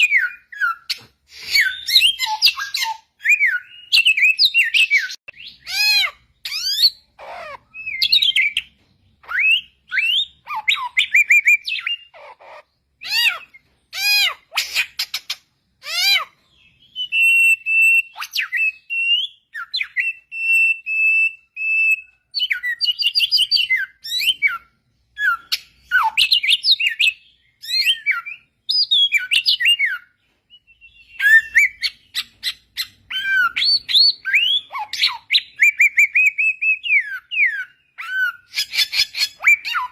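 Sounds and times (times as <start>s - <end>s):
bird singing whistled phrases: 0.0s - 7.1s, 16.0s - 39.9s.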